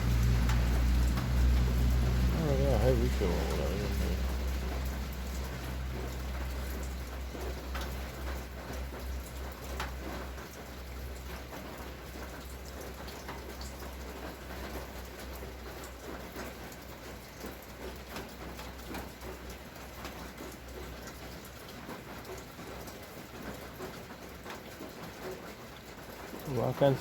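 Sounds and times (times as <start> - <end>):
low rumble: 0.0 - 5.5
heavy rain falling: 0.0 - 27.0
raindrops ticking on surface: 0.0 - 27.0.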